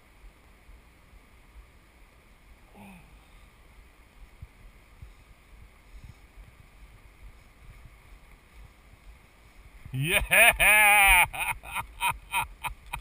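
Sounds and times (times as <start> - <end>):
wind on microphone: 4.2 - 11.7.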